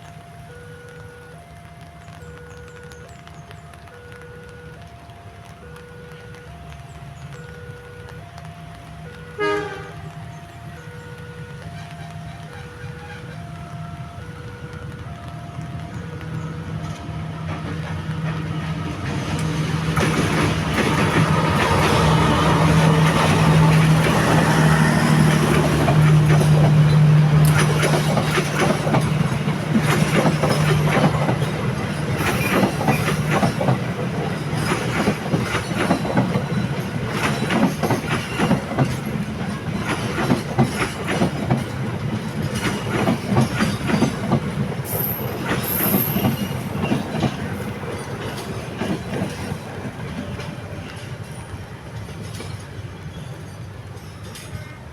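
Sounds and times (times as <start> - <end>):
locomotive engine hum: 0.0 - 54.9
train wheels clickety-clack: 1.0 - 54.9
high wheel squeal: 44.8 - 48.5.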